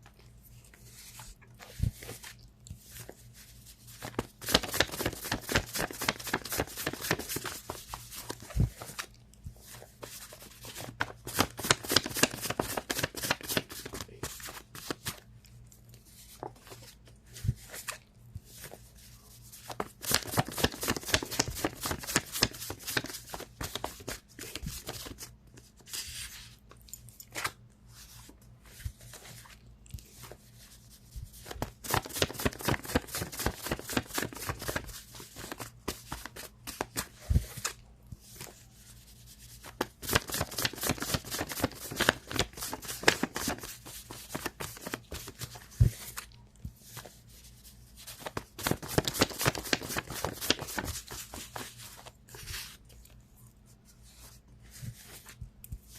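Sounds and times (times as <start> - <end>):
cards being shuffled: 3.9 - 15.2, 19.5 - 26.7, 31.3 - 38.6, 39.5 - 47.2, 48.0 - 53.2.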